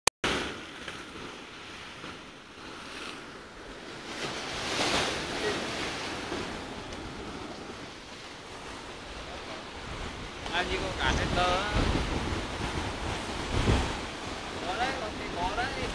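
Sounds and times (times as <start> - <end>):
sea surf washing in: 0.3 - 15.9
wind noise: 3.8 - 15.9.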